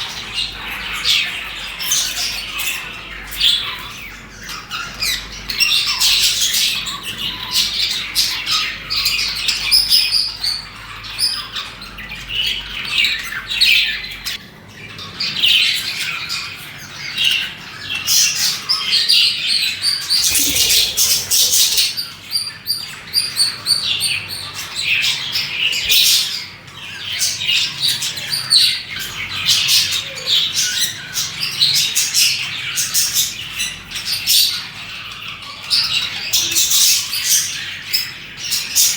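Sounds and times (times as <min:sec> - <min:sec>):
budgerigars chirping and chattering: 0:20.1 - 0:22.0.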